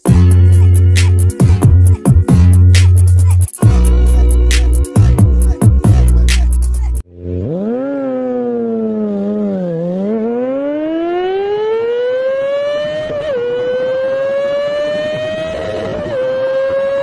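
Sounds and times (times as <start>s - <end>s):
motorcycle engine under full throttle: 7.0s - 17.0s.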